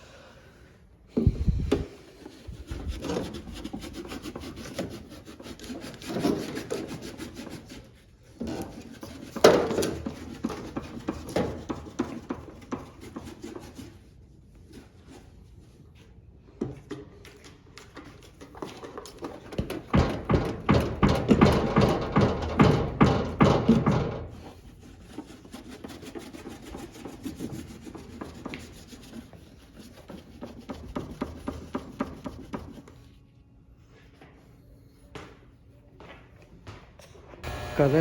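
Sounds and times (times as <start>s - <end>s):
rubbing and scraping: 1.3s - 15.5s.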